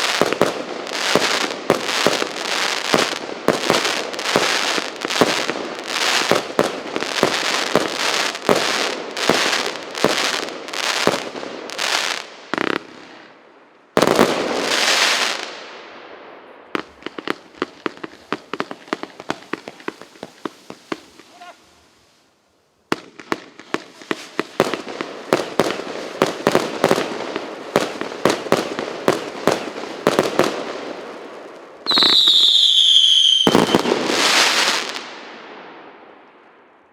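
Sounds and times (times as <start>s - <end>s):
fireworks firing with crackle: 0.0s - 15.8s, 16.7s - 36.9s
firework whistle falling in pitch: 31.9s - 33.9s.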